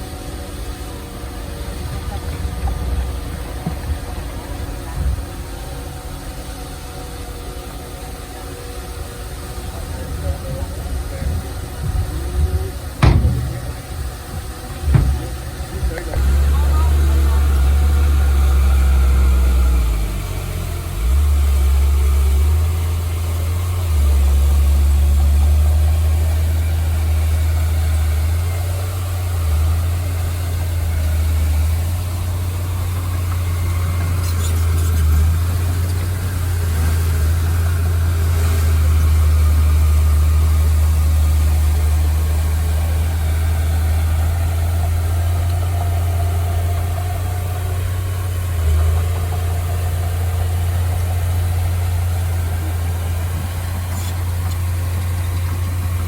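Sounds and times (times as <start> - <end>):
heavy machinery engine rumbling: 0.0 - 56.0.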